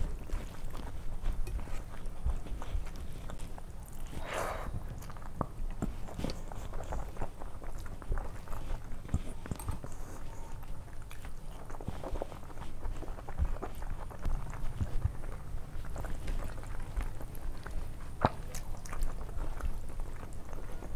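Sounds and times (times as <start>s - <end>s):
wet chewing and lip smacking: 0.0s - 20.9s.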